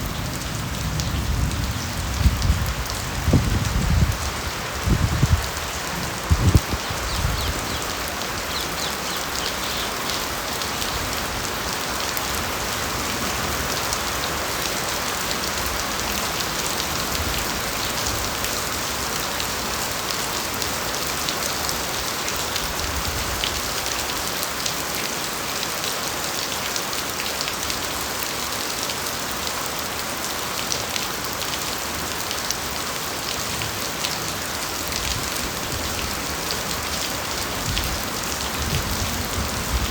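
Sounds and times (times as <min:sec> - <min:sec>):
rain falling on foliage: 0:00.0 - 0:39.9.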